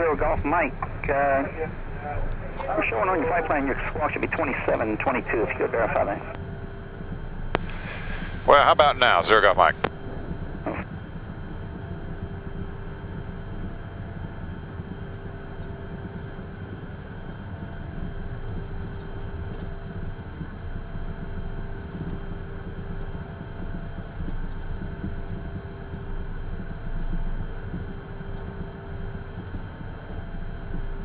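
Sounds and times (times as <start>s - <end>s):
jet engines hum and rush: 0.0s - 12.8s
high engine whine: 0.0s - 15.8s.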